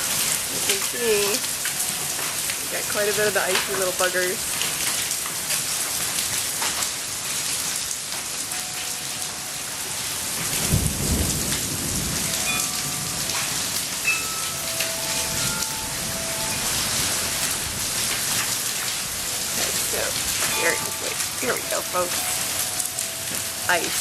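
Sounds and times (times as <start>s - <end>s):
hail and rain pelting: 0.0s - 24.0s
low rumble of thunder: 10.3s - 14.0s.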